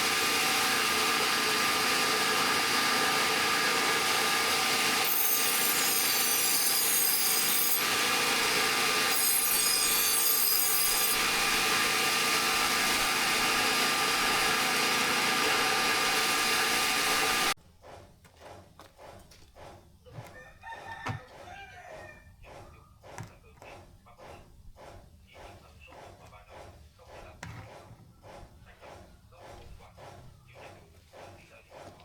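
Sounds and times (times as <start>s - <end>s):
power grinder whining on steel: 0.0s - 17.6s.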